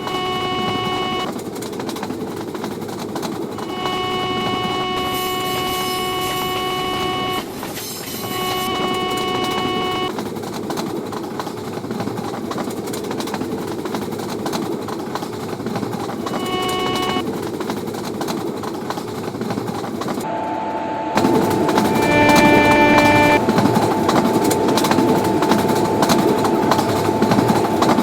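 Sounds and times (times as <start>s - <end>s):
locomotive horn: 0.0s - 1.3s, 3.6s - 7.6s, 8.2s - 10.1s, 16.3s - 17.2s, 20.2s - 23.6s
train wheels rumbling on rail: 0.0s - 28.0s.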